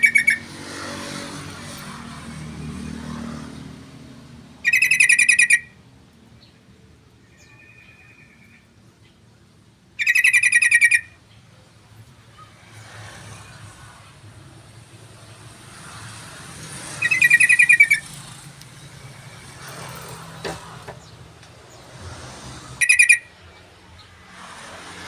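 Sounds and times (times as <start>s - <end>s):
bird chattering song: 0.0s - 0.4s, 4.6s - 5.7s, 10.0s - 11.4s, 17.0s - 18.2s, 22.8s - 23.2s.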